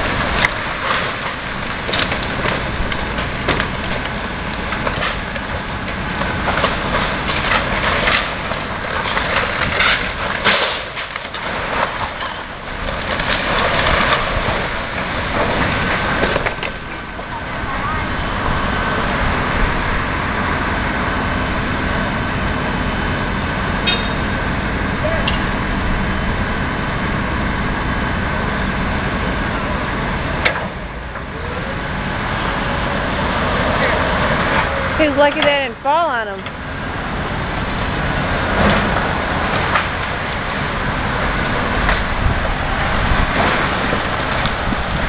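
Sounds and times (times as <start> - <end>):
debris cracking and knocking: 0.0 - 17.4, 37.8 - 45.0
diesel machinery rumbling: 0.0 - 45.0.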